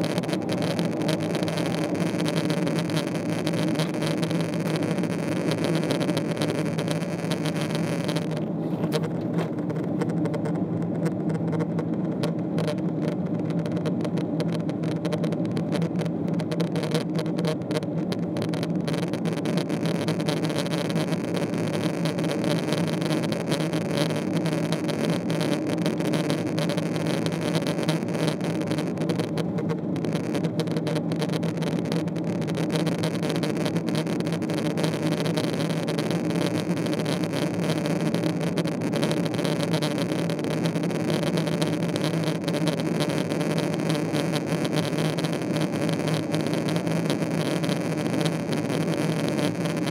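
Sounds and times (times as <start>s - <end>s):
aircraft cabin engine drone: 0.0s - 15.4s
constant low hum: 0.0s - 49.9s
faint scattered clicks: 0.0s - 49.9s
jet engine drone in cabin: 0.0s - 49.9s.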